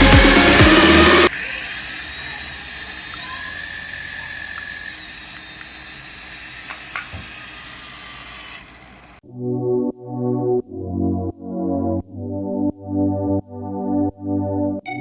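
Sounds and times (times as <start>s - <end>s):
small electric motor whining: 0.7s - 9.2s.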